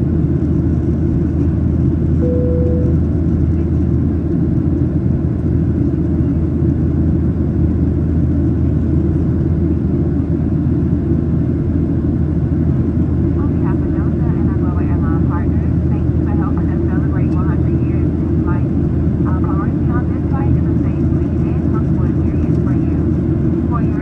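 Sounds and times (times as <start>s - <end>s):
airplane cabin rumble: 0.0s - 24.0s
brief single-pitch tone: 2.2s - 3.3s.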